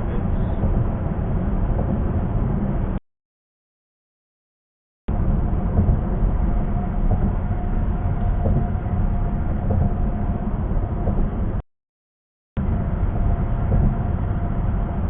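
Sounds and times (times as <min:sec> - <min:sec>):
road and tyre noise in car: 0:00.0 - 0:03.0, 0:05.1 - 0:11.6, 0:12.6 - 0:15.0.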